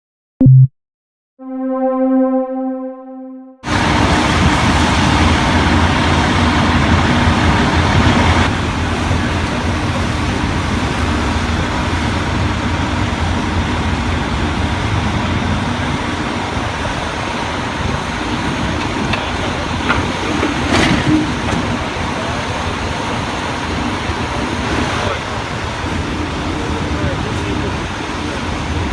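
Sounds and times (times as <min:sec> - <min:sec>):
heavy truck engine running: 0:03.6 - 0:28.9.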